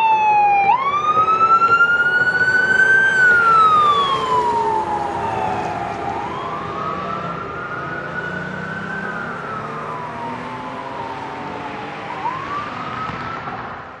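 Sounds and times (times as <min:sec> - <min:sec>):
fire engine siren wailing: 0:00.0 - 0:14.0
truck engine rumble: 0:00.3 - 0:14.0.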